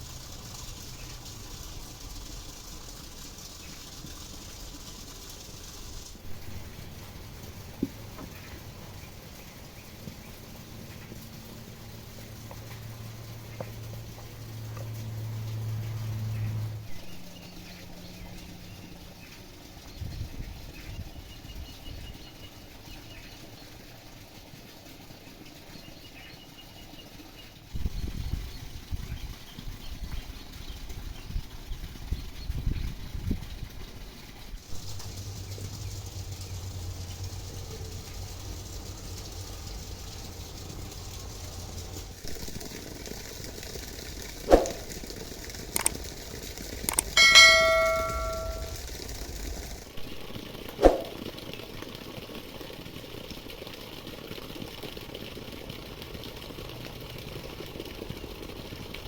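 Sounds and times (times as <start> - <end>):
low fluttering rumble: 34.8 - 51.8
sharp clicks: 46.8 - 48.5
birds chirping: 46.9 - 48.8
metal object ringing when struck: 47.2 - 48.8.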